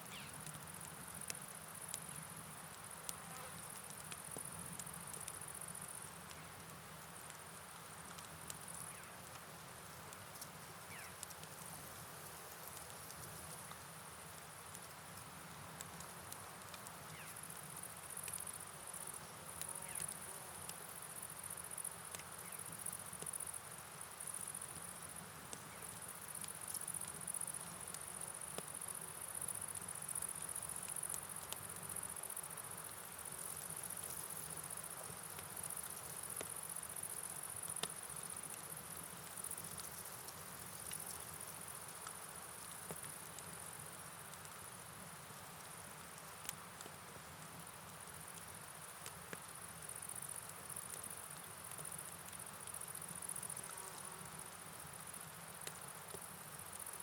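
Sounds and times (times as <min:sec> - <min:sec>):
rain hiss: 0:00.0 - 0:57.0
crickets trilling: 0:10.8 - 0:11.3, 0:17.1 - 0:20.3.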